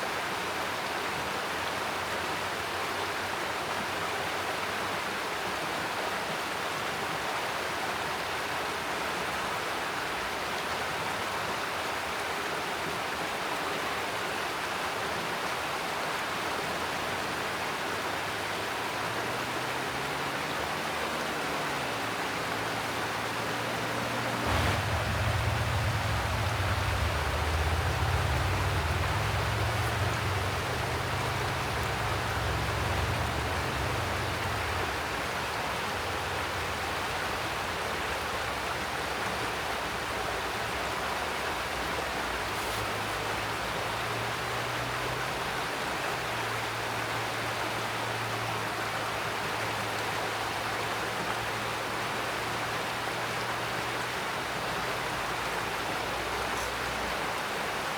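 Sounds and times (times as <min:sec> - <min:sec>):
mountain stream rushing over rocks: 0:00.0 - 0:57.9
low rumble: 0:24.4 - 0:35.5.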